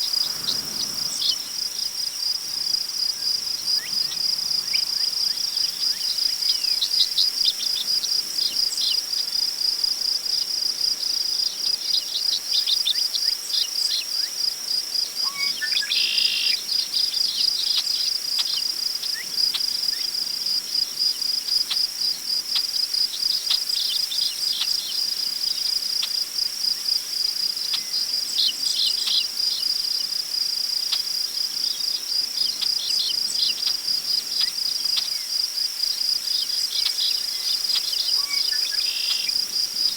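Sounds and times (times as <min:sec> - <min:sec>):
crickets chirping: 0:00.0 - 0:39.9
bird call: 0:38.2 - 0:39.4.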